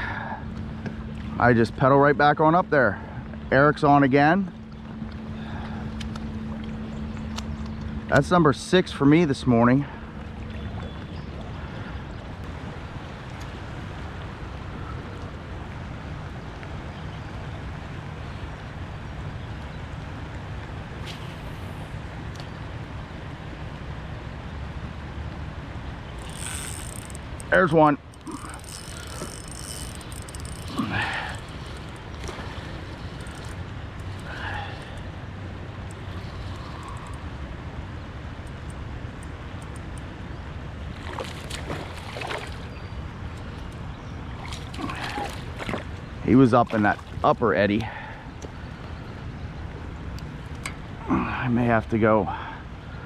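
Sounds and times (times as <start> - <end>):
water splashes: 26.0 - 37.7, 40.7 - 48.9
river current rushing: 26.0 - 38.3
sharp clicks: 26.2 - 35.1.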